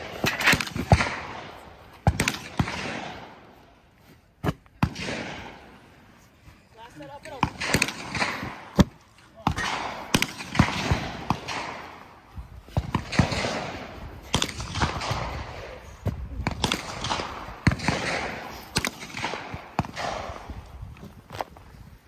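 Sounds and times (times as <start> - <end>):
gunshots with rolling echo: 0.0 - 3.5, 4.8 - 5.8, 7.3 - 8.8, 9.4 - 20.7.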